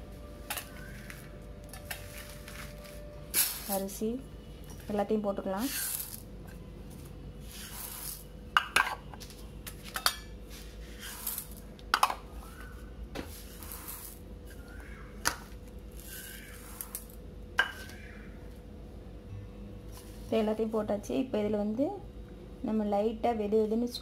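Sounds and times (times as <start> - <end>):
dry grains pouring: 5.6 - 6.2, 7.5 - 8.2, 11.0 - 11.6, 13.3 - 14.2
containers clinking against pot: 8.6 - 9.1.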